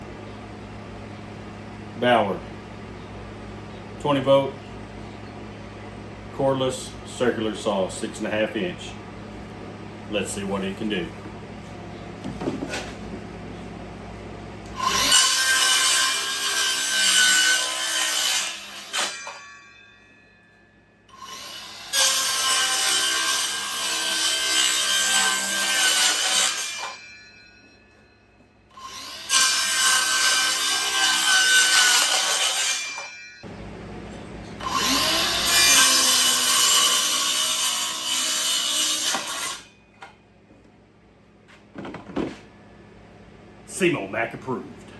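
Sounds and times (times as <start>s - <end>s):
circular saw cutting wood: 10.1s - 11.1s, 14.7s - 19.7s, 21.1s - 27.8s, 28.7s - 33.2s, 34.6s - 39.8s
saw blade winding down: 14.7s - 19.6s, 21.1s - 27.3s, 28.7s - 33.3s, 34.6s - 39.7s.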